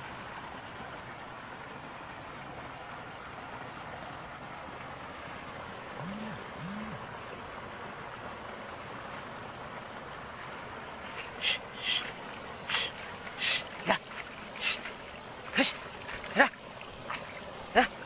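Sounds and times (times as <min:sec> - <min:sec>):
rushing water and wind: 0:00.0 - 0:18.0
brief low calls: 0:11.1 - 0:18.0.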